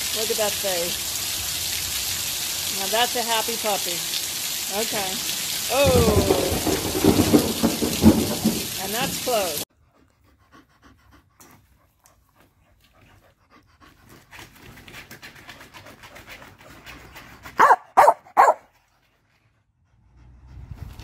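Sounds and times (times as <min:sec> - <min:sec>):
dog panting: 0:09.3 - 0:17.8, 0:18.4 - 0:21.0
dog barking: 0:17.6 - 0:18.7.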